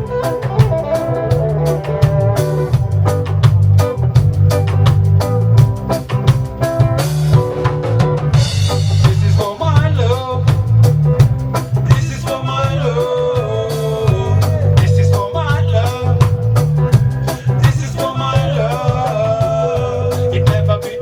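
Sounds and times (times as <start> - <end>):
wavering melody line: 0.0 - 3.7
drum kit steady beat: 0.0 - 21.0
pulsing bass line: 0.0 - 21.0
reggae band playing: 0.0 - 21.0.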